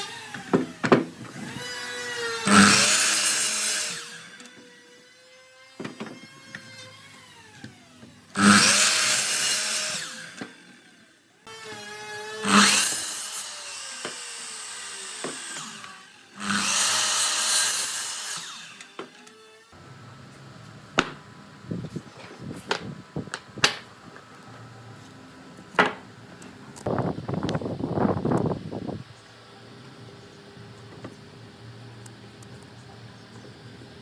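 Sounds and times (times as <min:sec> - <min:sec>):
power tool biting into wood: 0:00.0 - 0:05.1, 0:05.7 - 0:10.8, 0:11.5 - 0:19.8
power tool motor whining: 0:00.0 - 0:34.0
wood knocking: 0:25.7 - 0:26.1.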